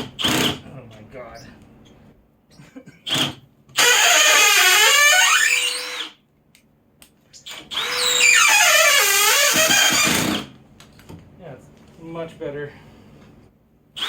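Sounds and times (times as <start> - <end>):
cordless drill driving screws: 3.1 - 6.1, 7.5 - 10.5.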